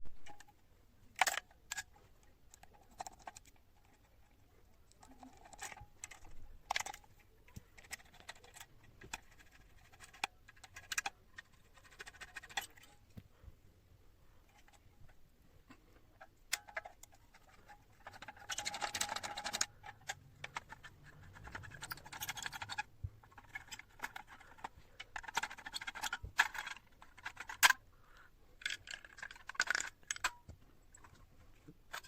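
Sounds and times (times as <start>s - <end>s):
clicks and taps of small parts: 0.2s - 1.9s, 4.9s - 13.3s, 15.7s - 27.8s, 28.6s - 32.0s.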